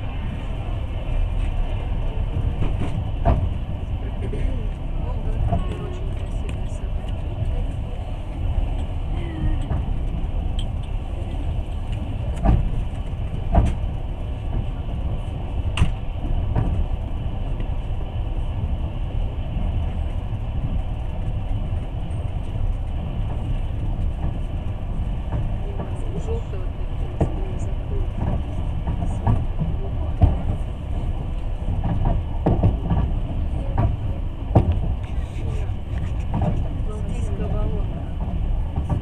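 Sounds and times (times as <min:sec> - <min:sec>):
train rumble inside carriage: 0:00.0 - 0:39.0.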